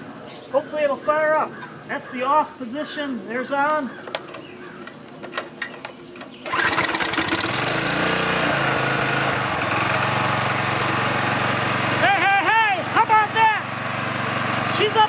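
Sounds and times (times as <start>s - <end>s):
small engine starting and running: 6.2s - 15.0s.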